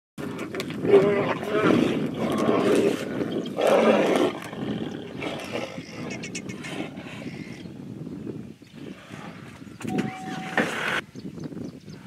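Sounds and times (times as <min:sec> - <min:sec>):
tigers snarling and growling: 0:00.2 - 0:07.6.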